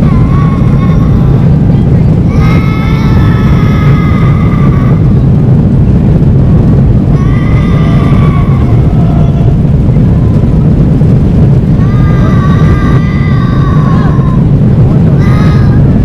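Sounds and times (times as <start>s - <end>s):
high drawn-out wail: 0.0s - 6.0s, 6.9s - 16.0s
airliner cabin roar: 0.0s - 16.0s.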